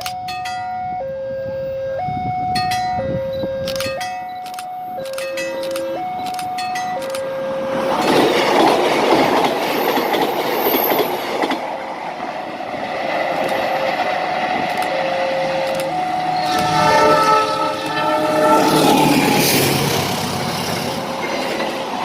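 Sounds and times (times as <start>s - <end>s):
two-note electronic warning tone: 0.0s - 8.0s, 14.9s - 19.6s
passenger train passing: 0.0s - 22.0s.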